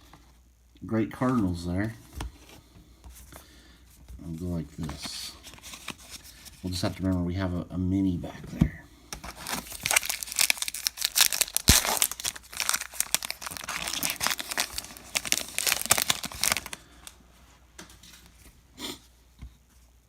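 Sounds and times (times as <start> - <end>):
wrapper crinkling and tearing: 9.2 - 17.2.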